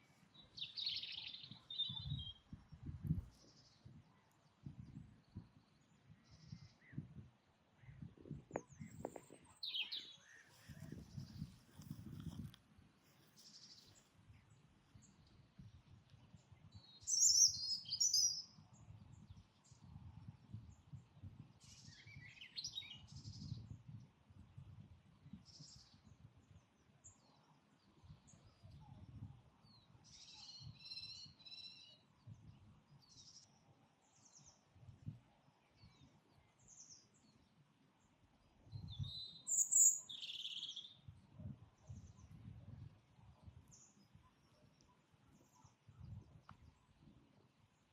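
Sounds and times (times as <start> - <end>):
wild birds singing and calling: 7.8 - 11.0, 16.8 - 18.4, 39.0 - 41.0.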